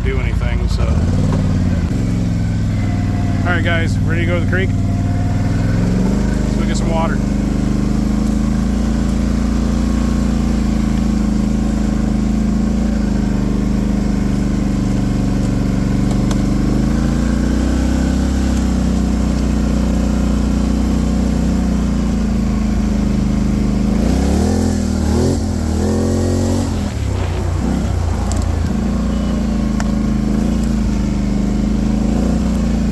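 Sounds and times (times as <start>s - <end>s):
atv engine revving: 0.0s - 32.9s.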